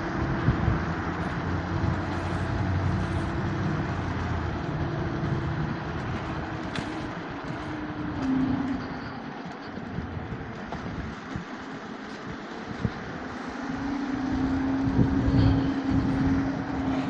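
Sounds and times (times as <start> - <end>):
street traffic: 0.0 - 17.0
vehicle engine humming: 0.0 - 17.0.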